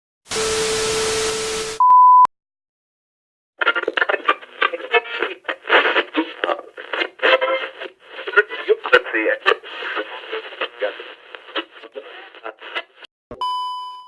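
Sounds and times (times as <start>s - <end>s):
person talking over radio: 3.6s - 13.1s
static hiss: 3.6s - 13.1s.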